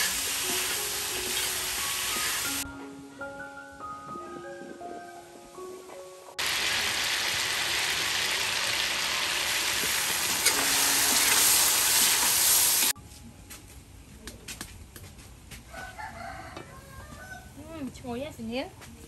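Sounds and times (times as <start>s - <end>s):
meat sizzling in a wok: 0.0s - 2.6s, 6.4s - 13.0s.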